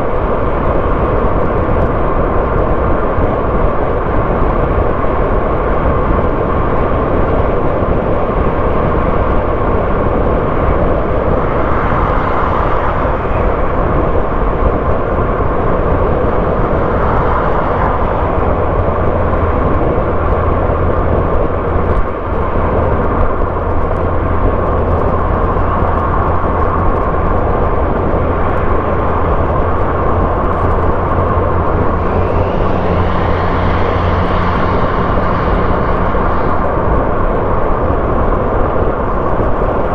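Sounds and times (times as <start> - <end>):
car engine hum: 0.0 - 39.9
tyre noise on road: 0.0 - 39.9
faint rising whine: 15.4 - 39.3.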